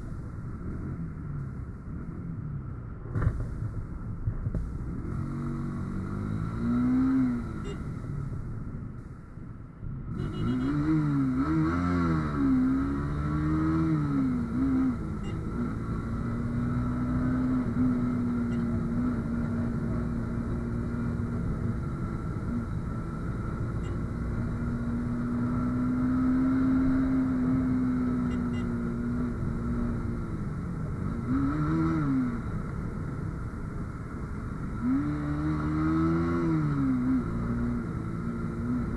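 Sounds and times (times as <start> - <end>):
motorcycle engine revving: 4.9 - 7.9, 10.1 - 32.6, 34.8 - 38.9.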